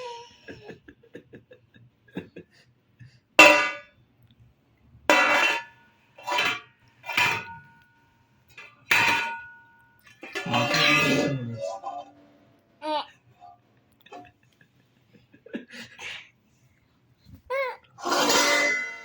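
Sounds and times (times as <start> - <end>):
metal utensils clinking: 5.1 - 7.6, 8.5 - 11.4, 18.0 - 19.0
metal utensils clanging: 5.1 - 7.8, 8.5 - 11.5, 18.0 - 19.0.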